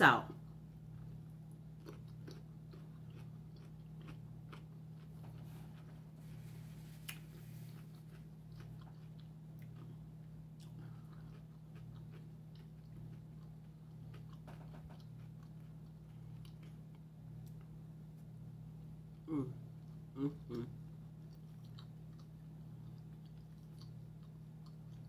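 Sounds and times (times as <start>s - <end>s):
steady low hum: 0.0s - 25.0s
person chewing and biting food: 0.9s - 6.1s, 7.0s - 17.7s, 19.3s - 25.0s.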